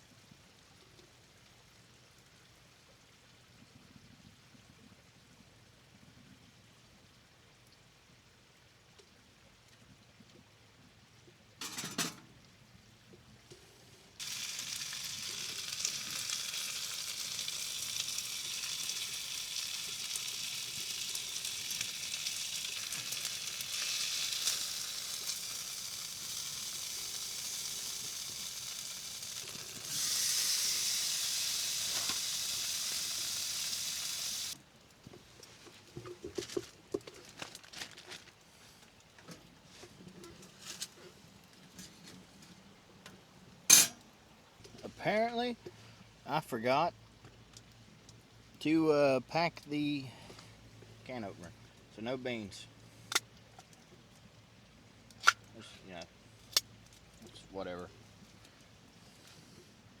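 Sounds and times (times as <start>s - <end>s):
food sizzling in a skillet: 14.2s - 34.6s.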